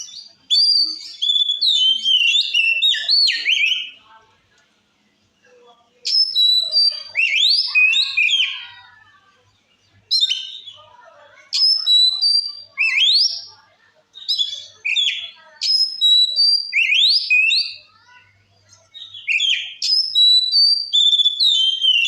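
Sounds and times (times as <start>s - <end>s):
magpie-robin whistled song: 0.0s - 4.0s, 6.0s - 8.6s, 10.1s - 10.8s, 11.6s - 13.5s, 14.2s - 17.9s, 19.0s - 22.0s.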